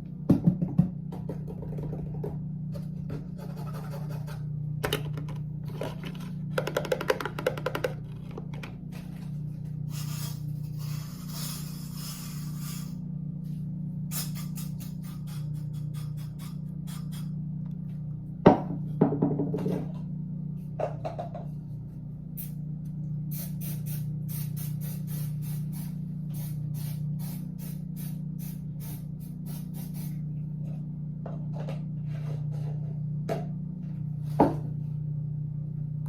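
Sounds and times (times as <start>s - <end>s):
steady low hum: 0.0s - 36.0s
short sharp hisses: 9.9s - 13.0s, 14.1s - 17.3s.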